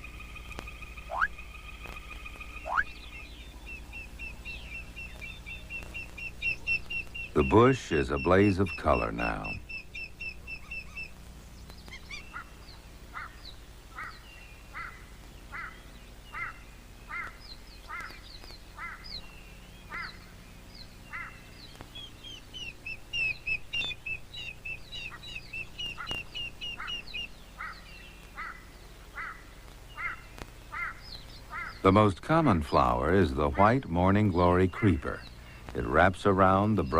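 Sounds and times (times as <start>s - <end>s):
bird falling call: 0.0s - 36.9s
birds quick high chirps: 0.0s - 36.9s
faint low hum: 0.0s - 36.9s.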